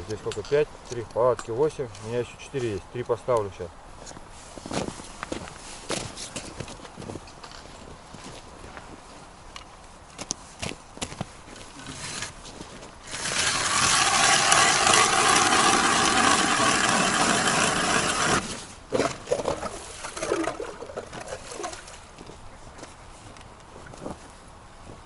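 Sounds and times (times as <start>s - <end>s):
ice auger grinding: 11.8s - 12.4s, 13.0s - 21.9s
scraping and knocking: 13.1s - 21.8s.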